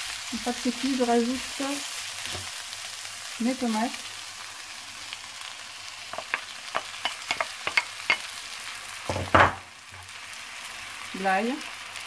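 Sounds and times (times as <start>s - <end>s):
vegetables sizzling in hot oil: 0.0s - 12.0s
loud knock: 9.1s - 9.6s.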